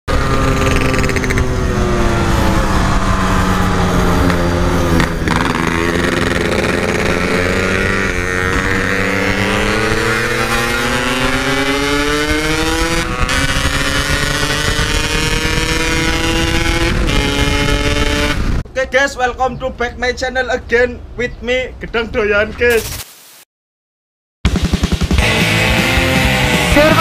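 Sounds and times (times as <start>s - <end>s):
two-stroke motorcycle engine: 0.1s - 18.6s.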